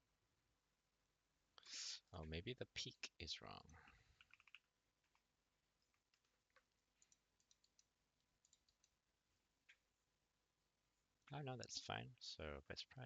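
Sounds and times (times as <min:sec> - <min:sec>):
computer keyboard clicking: 0:04.2 - 0:05.2, 0:06.0 - 0:08.9.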